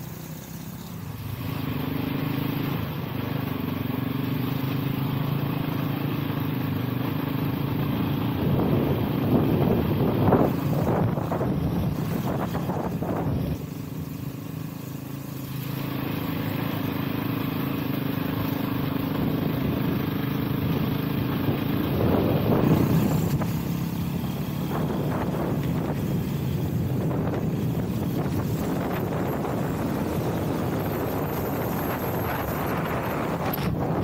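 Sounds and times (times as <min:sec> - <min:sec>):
dirt bike engine running: 0:00.0 - 0:34.0
wind noise on microphone: 0:08.1 - 0:13.7, 0:21.3 - 0:34.0.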